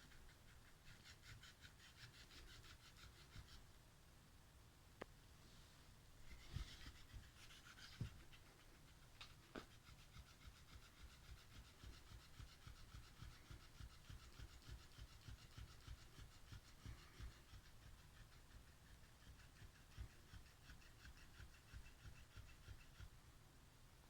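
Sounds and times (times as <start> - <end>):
quick rhythmic cat sounds: 6.2 - 23.2.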